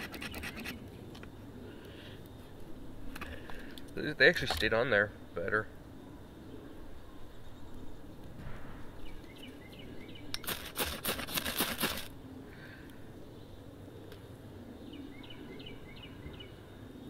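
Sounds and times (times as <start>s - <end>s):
knife scraping: 0.0s - 0.8s, 10.4s - 12.1s.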